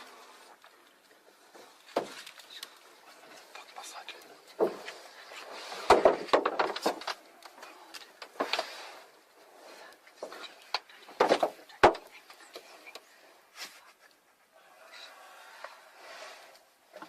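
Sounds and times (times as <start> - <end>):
knocks and thumps: 5.8 - 7.2, 11.1 - 12.1.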